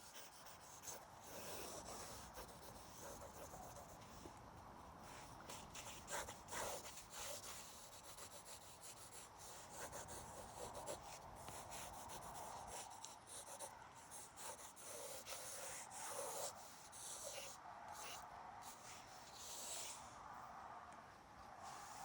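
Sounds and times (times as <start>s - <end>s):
pen scratching on paper: 0.0s - 4.3s, 5.1s - 20.0s.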